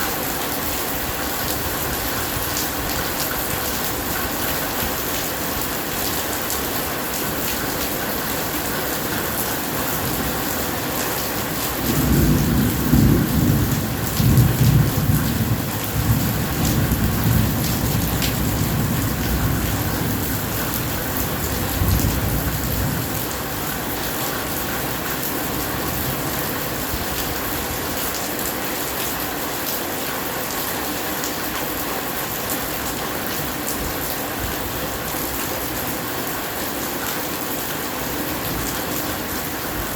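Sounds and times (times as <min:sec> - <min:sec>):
heavy rain falling: 0:00.0 - 0:39.9
low thunder rumble: 0:11.8 - 0:23.3.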